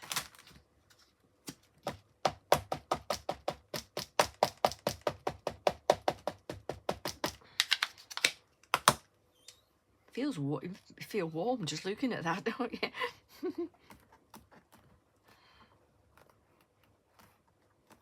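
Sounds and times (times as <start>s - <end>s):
rapid tapping on rubber stamp: 1.8s - 7.4s.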